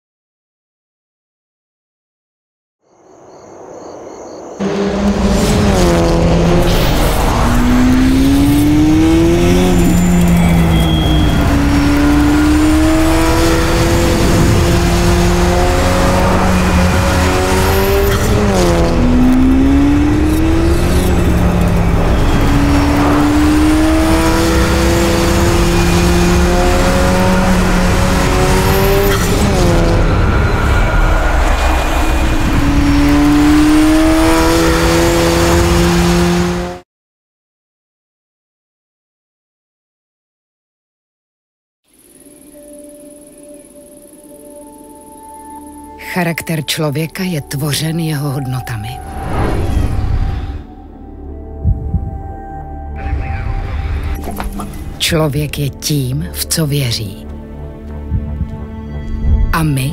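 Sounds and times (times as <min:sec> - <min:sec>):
car engine accelerating: 0:04.6 - 0:36.8, 0:48.8 - 0:55.1.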